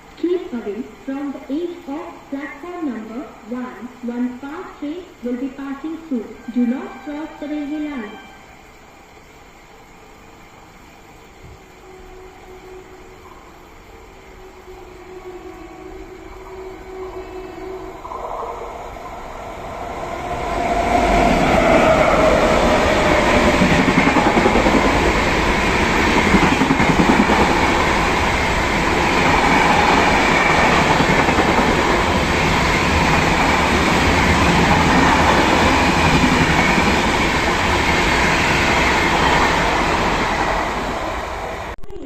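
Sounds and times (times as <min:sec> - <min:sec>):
fast train rushing rumble: 0:11.7 - 0:41.8.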